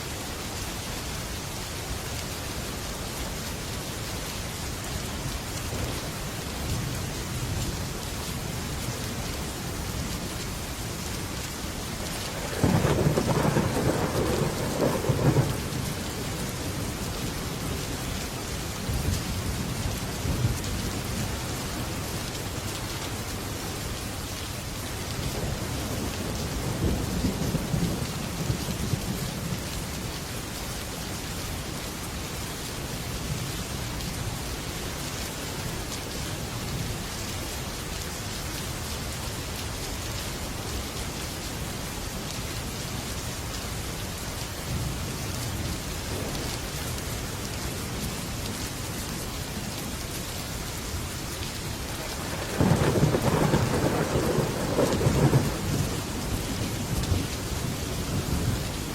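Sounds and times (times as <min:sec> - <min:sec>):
heavy rain on a metal roof: 0:00.0 - 0:58.9
thunder rumbling: 0:12.3 - 0:17.0, 0:52.0 - 0:58.9.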